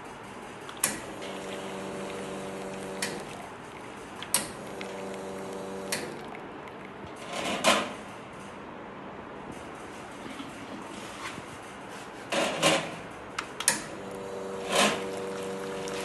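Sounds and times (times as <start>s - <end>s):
coffee machine humming: 0.6s - 7.0s, 13.8s - 16.0s.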